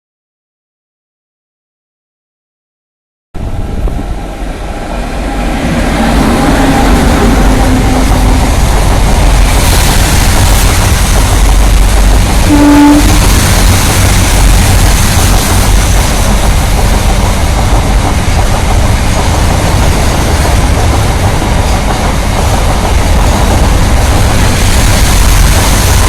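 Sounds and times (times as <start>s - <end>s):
freight train wheels rumbling: 3.4s - 26.0s.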